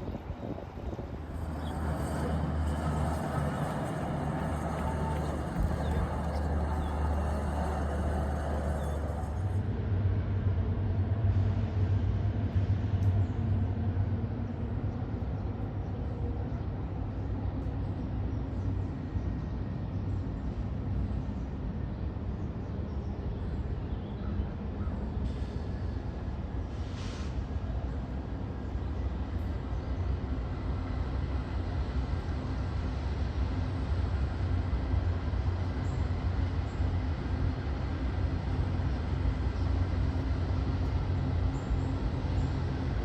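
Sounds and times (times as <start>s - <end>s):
diesel locomotive engine drone: 0.0s - 43.0s.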